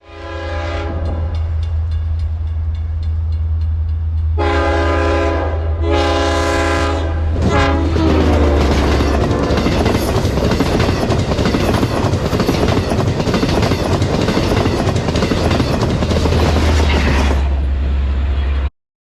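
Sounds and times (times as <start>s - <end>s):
train air horn blasts: 0.0s - 1.6s, 4.4s - 10.0s
diesel locomotive rumble: 0.3s - 18.7s.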